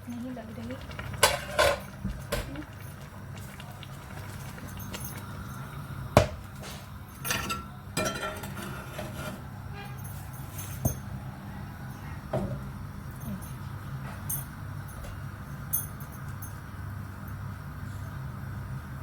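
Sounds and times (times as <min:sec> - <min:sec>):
metal cookware knocking: 0:07.2 - 0:08.7.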